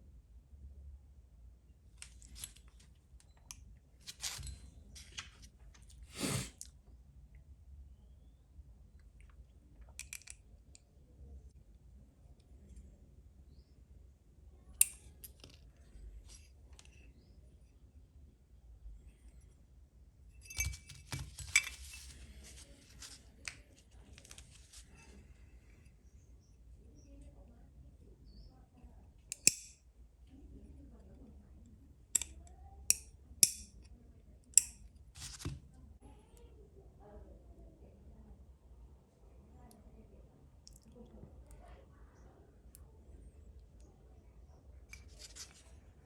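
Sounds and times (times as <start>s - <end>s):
light clicks and rustles of handling parts: 1.9s - 6.8s, 9.0s - 10.9s, 14.7s - 17.8s, 20.3s - 27.2s, 32.1s - 35.8s, 42.6s - 46.0s
small parts clicking and clinking: 10.0s - 10.4s, 20.4s - 23.6s
brushing scrape: 20.8s - 23.2s.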